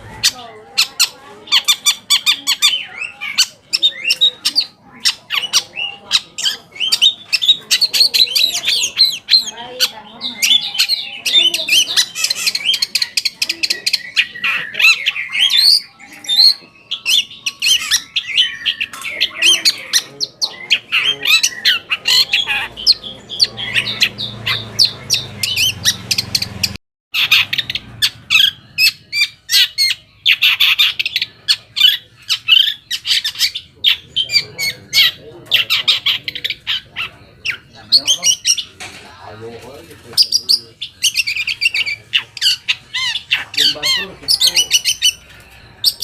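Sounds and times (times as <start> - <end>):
bird singing scratchy chatter: 0.0 - 46.0.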